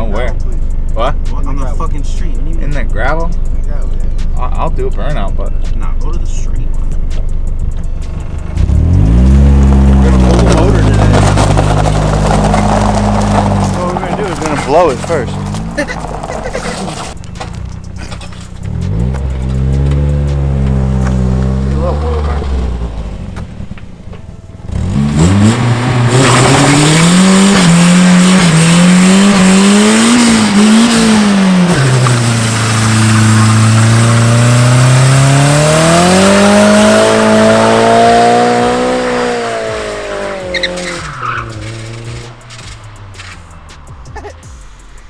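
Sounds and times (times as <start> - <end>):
car engine revving hard: 8.0 - 17.2, 17.9 - 23.8, 24.6 - 43.2
tyres squealing: 8.0 - 44.4.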